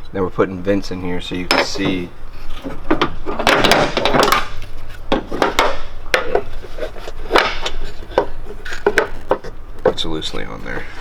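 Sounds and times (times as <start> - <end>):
rubbing and scraping: 0.3 - 11.0
hard parts knocking and clacking: 1.3 - 11.0.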